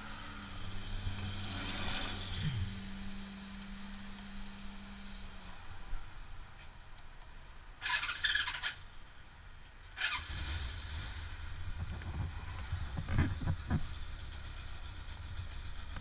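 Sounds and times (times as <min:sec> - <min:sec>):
motorcycle throttle blips: 0:02.1 - 0:07.0
motorcycle engine idling: 0:02.2 - 0:16.0
motorcycle starter whirring: 0:07.8 - 0:08.9, 0:10.0 - 0:11.2.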